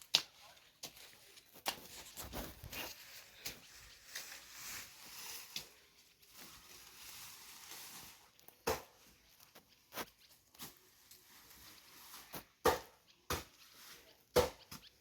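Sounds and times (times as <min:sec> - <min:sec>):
scraping and rustling: 0:00.5 - 0:12.6
hand hoe chopping soil: 0:08.6 - 0:09.2, 0:12.1 - 0:14.8.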